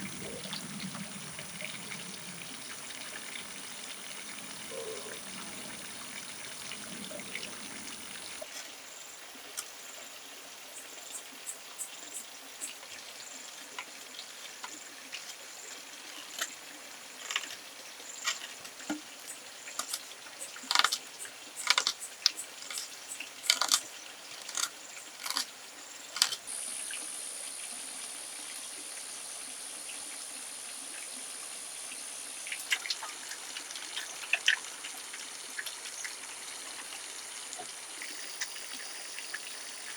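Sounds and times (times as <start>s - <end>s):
high-pitched hiss: 0.0s - 8.4s
water trickling and dripping: 0.0s - 39.9s
sharp clicks and knocks: 21.6s - 22.0s, 23.5s - 23.8s, 26.2s - 26.4s.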